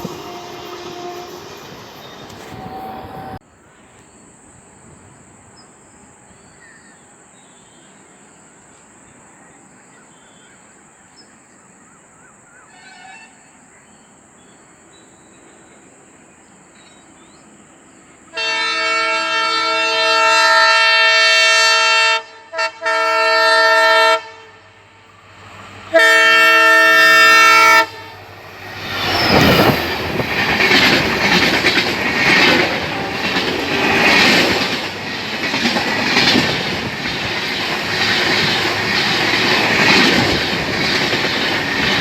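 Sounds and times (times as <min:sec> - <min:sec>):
locomotive air horn: 0:00.0 - 0:03.4, 0:12.7 - 0:13.5, 0:18.3 - 0:25.2, 0:25.9 - 0:28.4.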